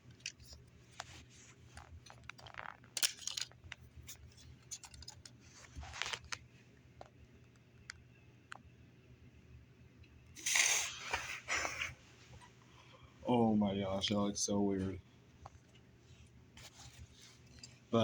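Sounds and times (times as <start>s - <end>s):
plastic pieces scraping: 0.0s - 6.4s
plastic bricks clicking: 2.3s - 3.7s.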